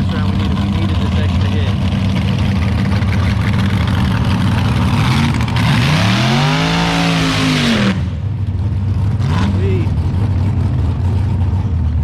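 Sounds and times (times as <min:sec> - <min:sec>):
low engine idle: 0:00.0 - 0:05.6, 0:08.2 - 0:12.0
racing car engine revving: 0:00.0 - 0:08.3, 0:09.0 - 0:10.0.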